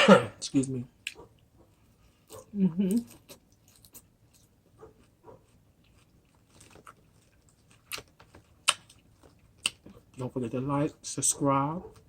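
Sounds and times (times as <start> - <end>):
person chewing food: 1.0 - 10.2.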